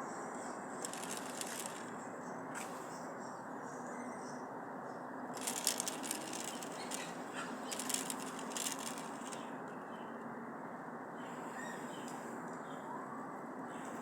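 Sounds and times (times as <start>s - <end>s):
crackling rattling clicks: 0.8s - 1.9s, 5.4s - 9.4s.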